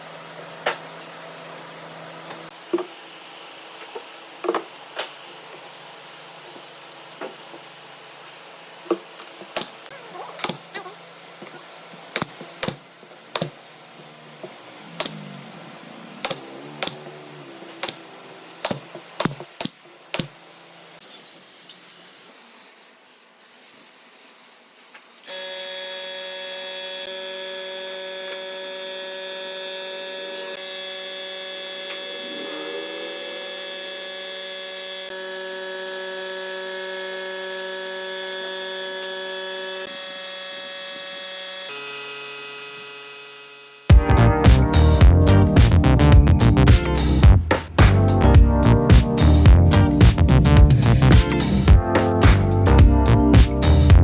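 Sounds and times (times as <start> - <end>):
electronic music held tones: 31.7 - 34.2, 43.9 - 54.0.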